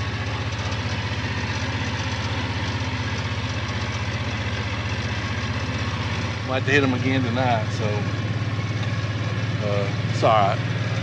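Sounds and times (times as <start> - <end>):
small vehicle engine running: 0.0 - 11.0.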